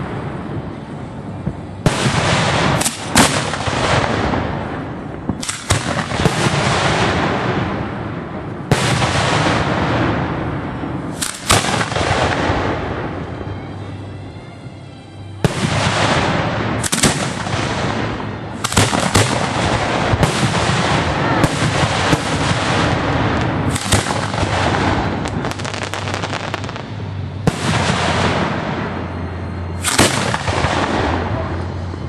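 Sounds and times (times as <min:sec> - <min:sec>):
fireworks crackling: 0:00.0 - 0:14.2, 0:15.4 - 0:32.0
fireworks sharp reports: 0:00.0 - 0:14.3, 0:15.2 - 0:32.0.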